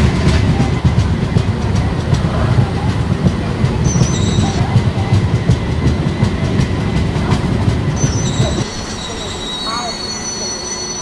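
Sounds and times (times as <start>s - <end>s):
clickety-clack over rail joints: 0.0s - 9.2s
train wheel rumble: 0.0s - 11.0s
thin wheel squeal: 8.0s - 11.0s.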